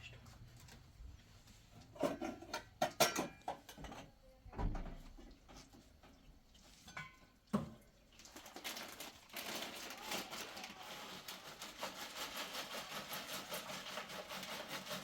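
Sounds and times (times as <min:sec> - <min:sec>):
clinks and knocks of hard objects: 0:02.0 - 0:05.0.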